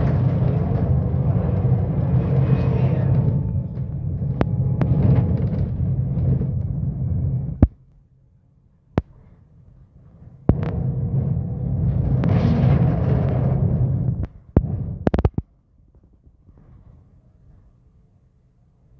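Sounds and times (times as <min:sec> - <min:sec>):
bus diesel engine droning: 0:00.0 - 0:07.7.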